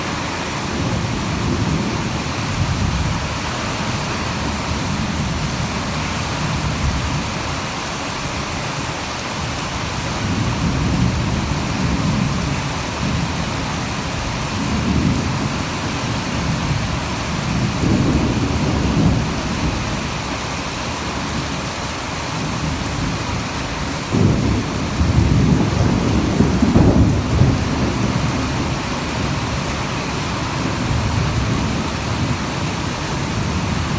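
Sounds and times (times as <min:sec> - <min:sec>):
heavy rain falling: 0:00.0 - 0:33.9
thunder rumbling: 0:10.2 - 0:20.4, 0:22.4 - 0:33.9.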